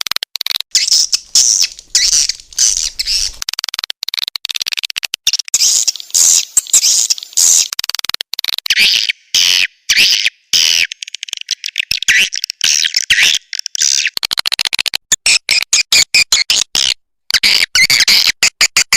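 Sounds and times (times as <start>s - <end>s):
swiftlets twittering chirps: 0.7s - 3.4s, 5.6s - 7.7s.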